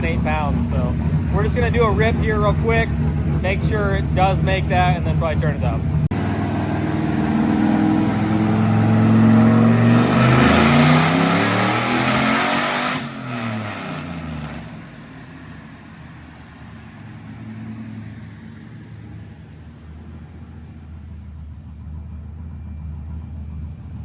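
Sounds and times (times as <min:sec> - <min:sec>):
car engine revving on dyno: 0:00.0 - 0:19.4.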